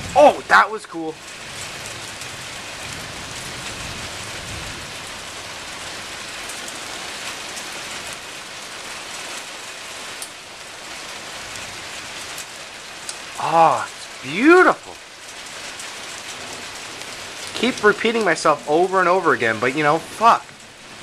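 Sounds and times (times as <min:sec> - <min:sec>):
heavy rain: 0:00.0 - 0:21.0
low thunder rumble: 0:01.4 - 0:05.4.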